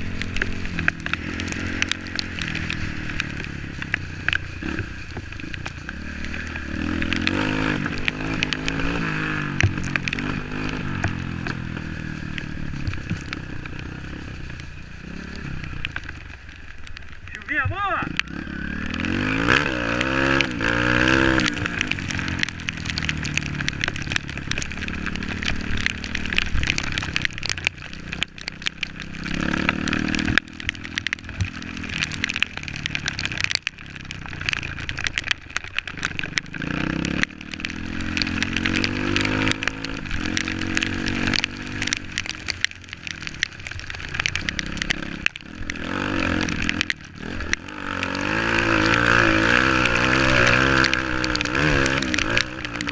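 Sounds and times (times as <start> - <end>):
motorcycle engine revving: 0.0 - 16.5, 17.3 - 52.9.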